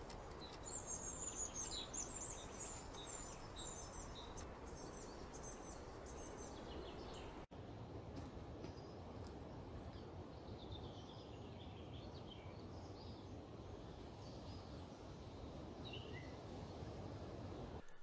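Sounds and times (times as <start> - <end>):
faint songbirds chirping: 0.0 - 18.0
outdoor background noise: 0.0 - 18.0.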